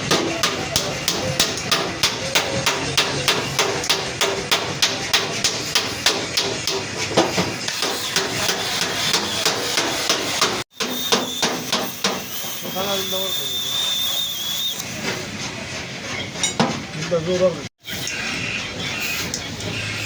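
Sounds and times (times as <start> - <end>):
hammer blows on sheet metal: 0.0 - 13.4.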